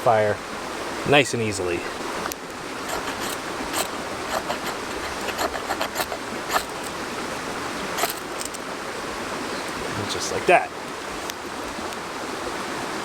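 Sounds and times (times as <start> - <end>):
ferro rod scraping: 2.5 - 8.6.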